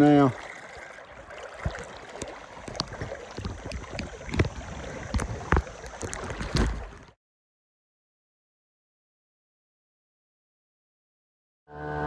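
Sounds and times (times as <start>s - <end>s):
water noise: 0.0s - 7.2s
wind: 0.0s - 7.2s
knocks in a small boat: 1.6s - 7.1s.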